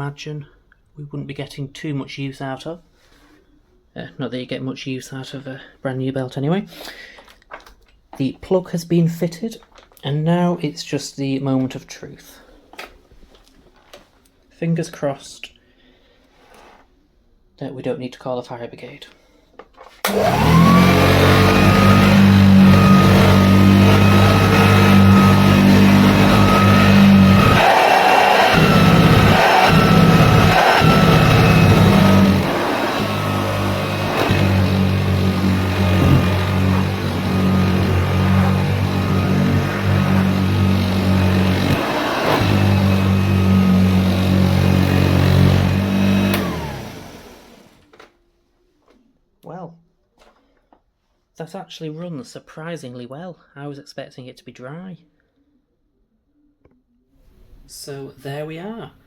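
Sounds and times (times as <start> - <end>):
vacuum cleaner switch click: 20.0 - 20.6
vacuum cleaner motor humming: 20.1 - 47.8.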